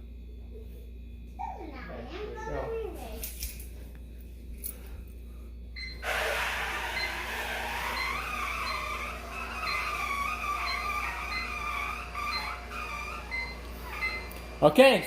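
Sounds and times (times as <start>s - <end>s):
robot vacuum whining: 5.8s - 15.0s.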